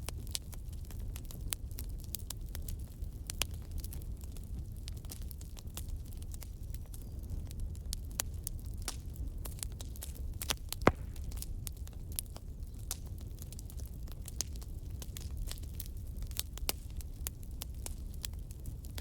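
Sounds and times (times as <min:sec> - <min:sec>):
logs crackling in a fireplace: 0:00.0 - 0:19.0
low rumble of flames: 0:00.0 - 0:19.0
loud pop from fire: 0:10.7 - 0:11.8.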